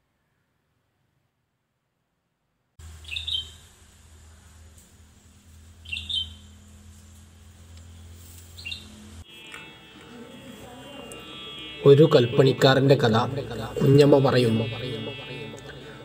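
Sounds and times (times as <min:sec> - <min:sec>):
steady low hum: 0:02.8 - 0:16.0
bird chirping: 0:03.0 - 0:03.7, 0:05.8 - 0:06.6, 0:08.5 - 0:09.1
music: 0:09.3 - 0:12.7.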